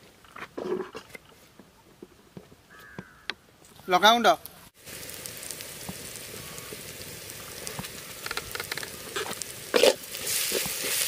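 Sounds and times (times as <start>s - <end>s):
onions sizzling in hot oil: 4.8s - 11.0s
spatula scraping a wok: 8.4s - 11.0s.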